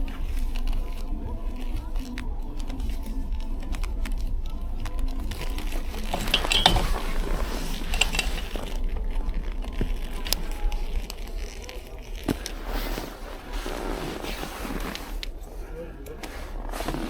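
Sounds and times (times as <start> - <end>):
clicks rattles and crunches: 0.0 - 15.5
bicycle rolling over snow: 0.0 - 17.0.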